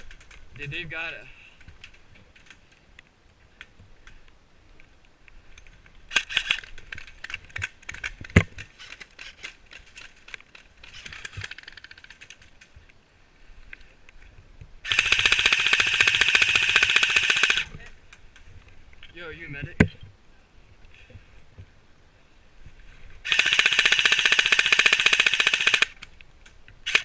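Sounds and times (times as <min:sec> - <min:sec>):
airsoft gun full-auto burst: 0:14.9 - 0:17.7, 0:23.2 - 0:26.0.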